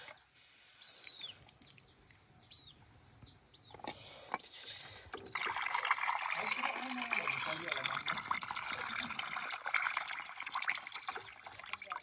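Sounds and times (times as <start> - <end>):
faint high bird chirps: 0.0 - 9.0.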